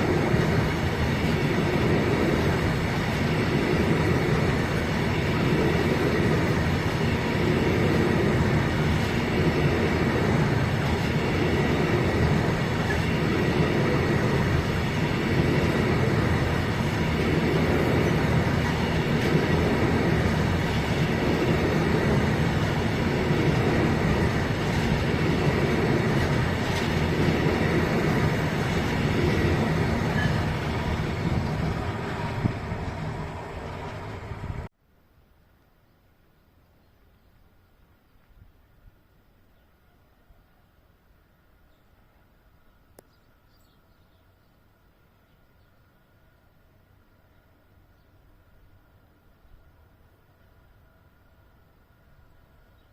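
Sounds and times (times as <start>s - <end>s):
train wheels rumbling on rails: 0.0s - 34.7s.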